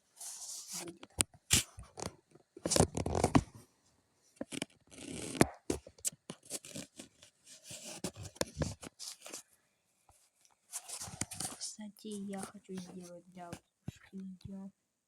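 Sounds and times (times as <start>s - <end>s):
scraping and rustling: 4.4s - 9.4s, 10.2s - 14.1s.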